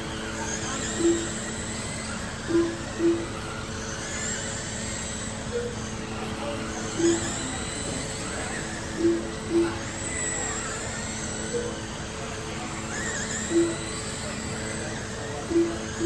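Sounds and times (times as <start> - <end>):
rc car motors whining: 0.0 - 16.0
short electronic beeps: 0.6 - 1.5, 6.8 - 11.8, 13.0 - 16.0.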